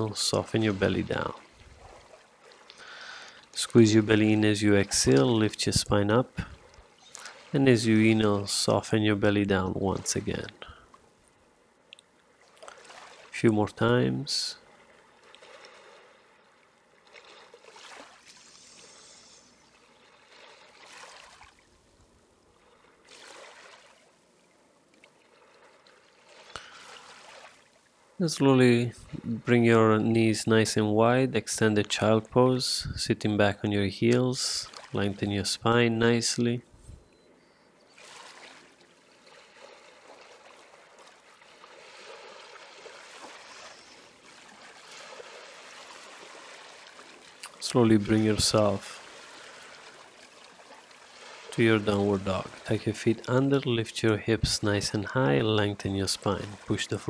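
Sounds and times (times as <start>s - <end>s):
stream water trickling: 0.0s - 57.0s
slow breathing: 2.7s - 3.6s, 6.4s - 7.5s, 18.3s - 19.7s, 26.4s - 27.3s, 49.2s - 50.0s.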